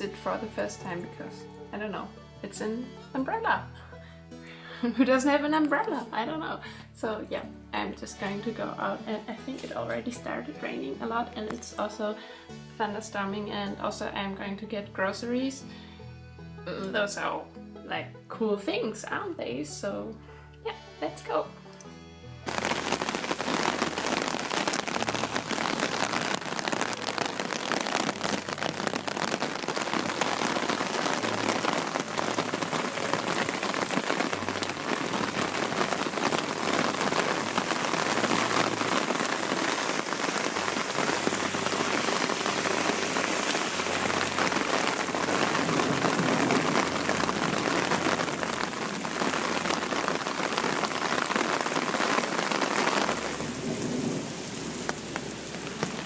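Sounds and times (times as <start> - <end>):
rain pattering on plastic umbrella: 0.0 - 0.9, 22.5 - 56.0.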